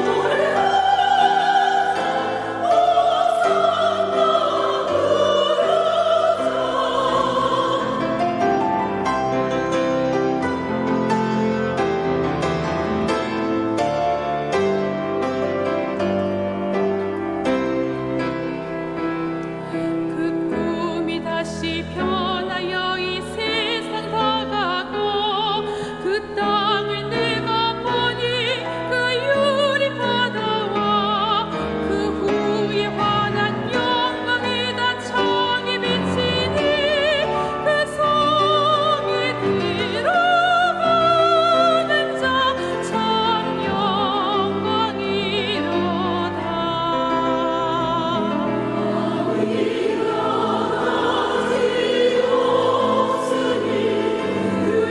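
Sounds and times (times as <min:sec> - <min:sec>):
church choir singing: 0:00.0 - 0:54.9
piano accompaniment: 0:00.0 - 0:54.9.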